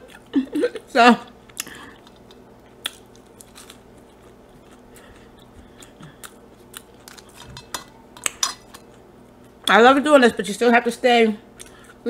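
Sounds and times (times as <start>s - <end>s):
person chewing food: 1.4s - 9.7s.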